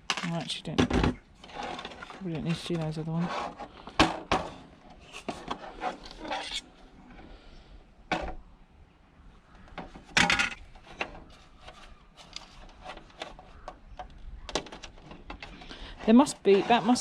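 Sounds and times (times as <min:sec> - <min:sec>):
plastic parts clattering: 0:00.0 - 0:06.6, 0:09.8 - 0:17.0
plastic parts clicking and rattling: 0:09.7 - 0:17.0.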